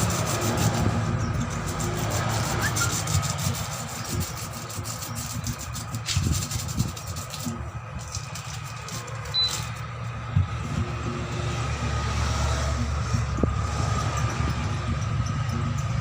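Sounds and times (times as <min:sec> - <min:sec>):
scraping on rubber: 0:00.0 - 0:10.9
steady low rumble: 0:00.0 - 0:16.0.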